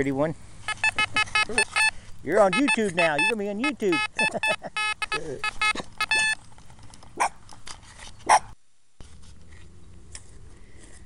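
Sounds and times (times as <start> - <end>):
metal detector beeping: 0.6 - 6.4
small dog barking: 7.2 - 7.4, 8.2 - 8.6.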